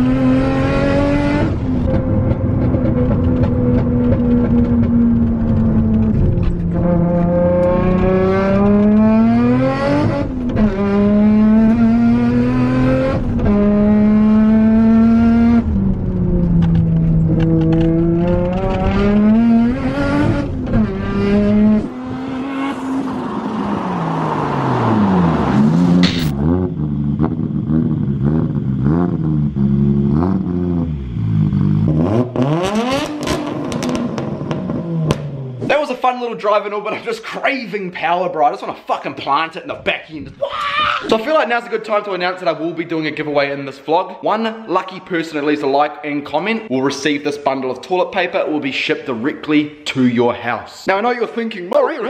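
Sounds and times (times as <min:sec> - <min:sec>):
car engine revving through gears: 0:00.0 - 0:35.7.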